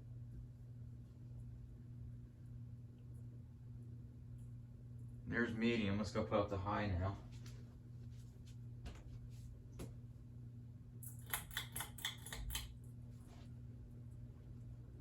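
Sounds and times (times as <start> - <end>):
ceiling fan motor humming: 0.0 - 15.0
pull-chain switch clicks and rattles: 11.0 - 12.7.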